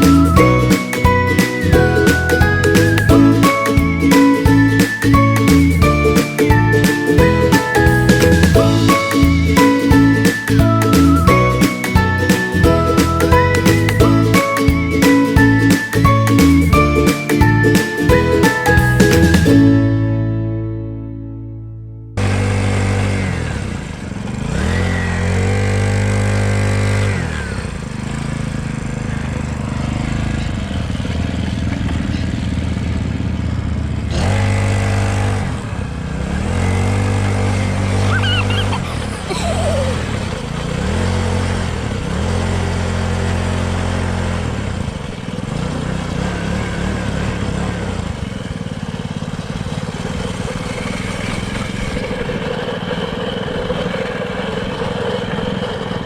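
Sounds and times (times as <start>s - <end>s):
dirt bike engine revving: 22.2s - 56.0s.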